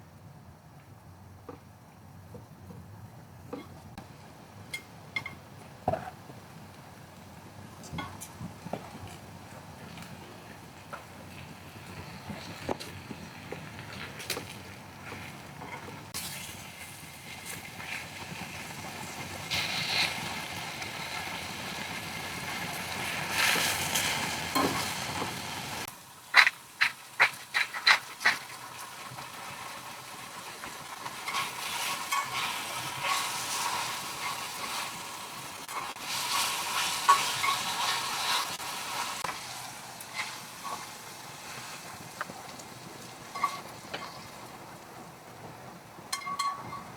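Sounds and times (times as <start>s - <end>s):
food sizzling in a pan: 9.7s - 44.9s.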